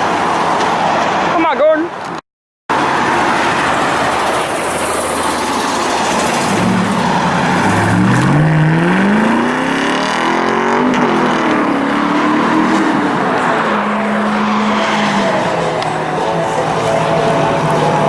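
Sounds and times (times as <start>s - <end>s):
continuous rushing noise: 2.7s - 8.1s, 11.1s - 18.0s
car engine accelerating hard: 2.7s - 18.0s.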